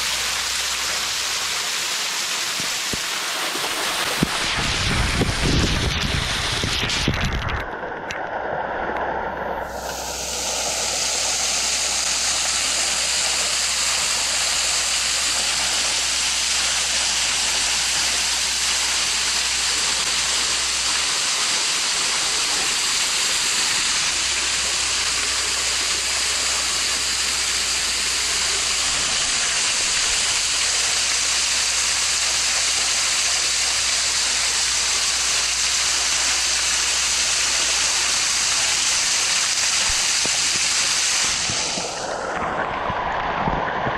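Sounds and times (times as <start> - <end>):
waterfall rushing: 0.0 - 7.2, 9.5 - 43.4
low rumbling: 3.7 - 31.3.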